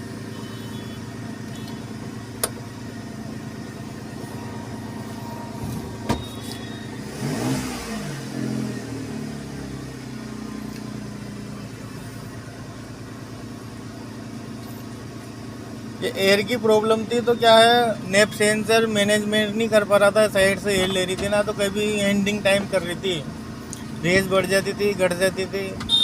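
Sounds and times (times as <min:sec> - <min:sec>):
car engine idling: 0:00.0 - 0:26.0
engine revving: 0:04.0 - 0:11.6.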